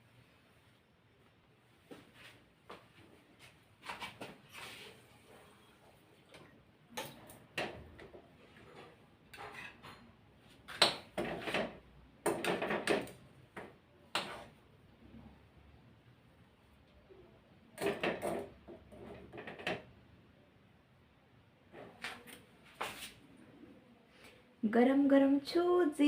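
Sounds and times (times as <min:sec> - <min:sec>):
metal spoon scraping and clinking: 0:08.6 - 0:10.1.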